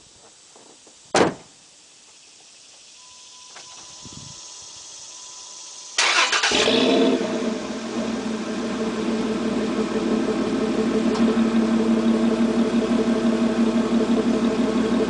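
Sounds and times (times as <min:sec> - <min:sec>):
thump: 0:01.1 - 0:01.6
steady high tone: 0:03.0 - 0:06.0
car engine cranking and idling: 0:05.6 - 0:15.0.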